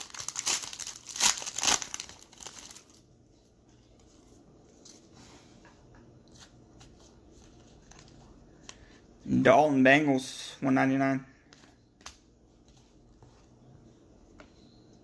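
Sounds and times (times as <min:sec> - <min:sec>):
wrapper tearing and crinkling: 0:00.0 - 0:03.0.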